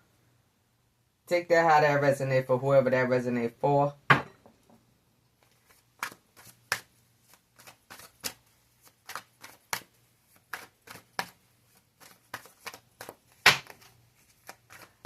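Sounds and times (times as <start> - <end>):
cards shuffled snapping: 5.4 - 15.0.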